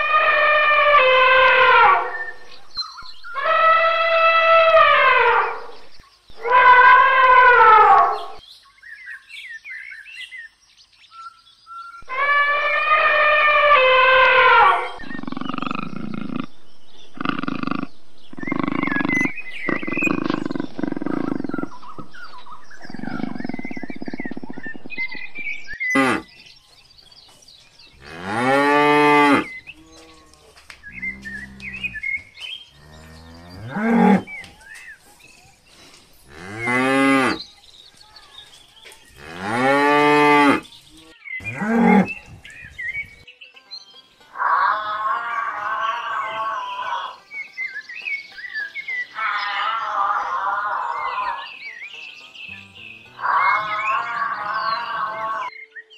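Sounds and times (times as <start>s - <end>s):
loud pitched animal call: 3.3s - 5.8s, 6.4s - 8.4s, 12.0s - 16.5s, 17.1s - 25.2s, 53.1s - 55.5s
grunting calls: 12.0s - 25.3s
buffalo lowing: 12.0s - 26.3s, 28.0s - 32.2s.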